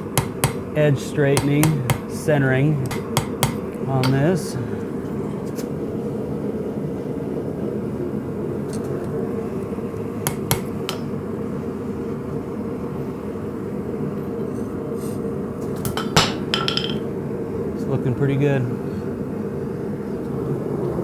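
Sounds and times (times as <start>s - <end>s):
hammer taps on blade: 0.2s - 0.6s, 1.4s - 2.1s, 2.8s - 4.2s, 10.3s - 11.0s.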